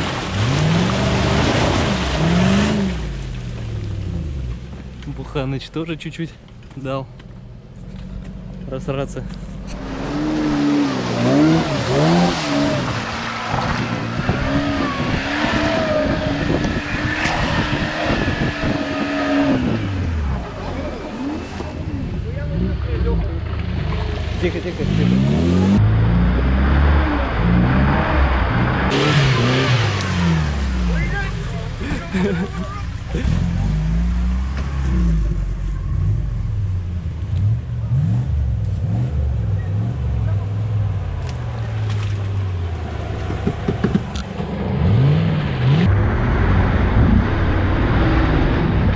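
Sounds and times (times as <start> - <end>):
off-road vehicle engine revving: 0.0 - 5.6, 7.8 - 48.9
rattle and knocking from rough ground: 43.1 - 44.6.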